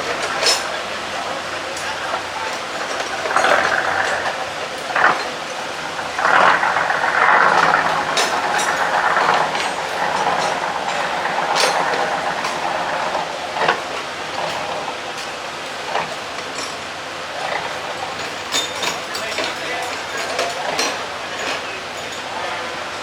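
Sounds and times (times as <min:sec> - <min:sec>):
boat engine running: 0:00.0 - 0:23.0
water noise: 0:00.0 - 0:23.0.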